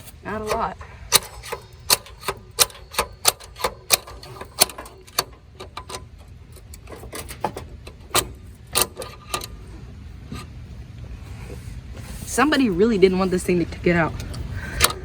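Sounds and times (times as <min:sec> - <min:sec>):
ratchet wrench clicking: 0:00.4 - 0:09.6.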